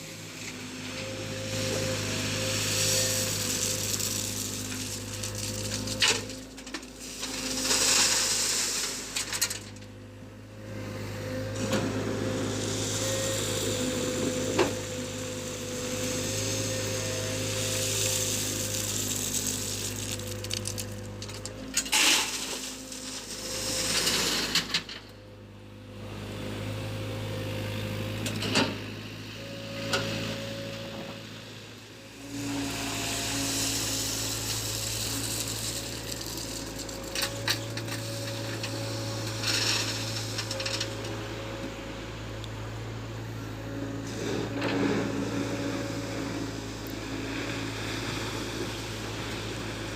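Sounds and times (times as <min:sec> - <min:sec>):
excavator running: 0:00.0 - 0:49.9
gravel scraping and rattling: 0:01.6 - 0:09.9, 0:17.3 - 0:25.1, 0:32.6 - 0:41.3.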